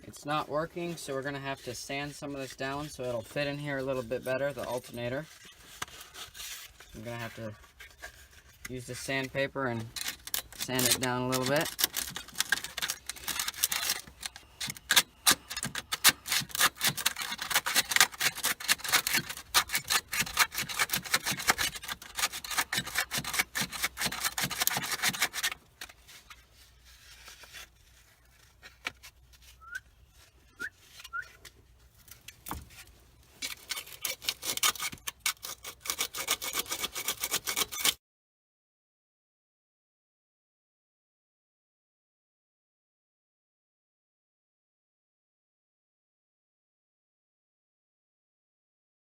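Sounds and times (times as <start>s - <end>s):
sandpaper rasping on metal: 0.2s - 28.4s, 33.5s - 38.0s.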